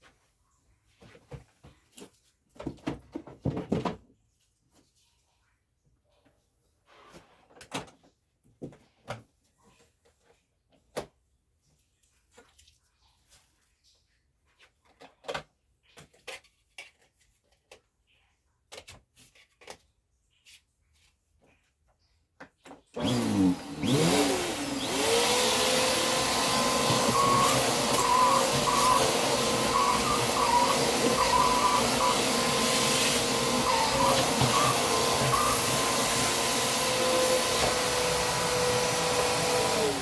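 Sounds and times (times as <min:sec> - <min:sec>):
vacuum cleaner running: 0:23.0 - 0:40.0.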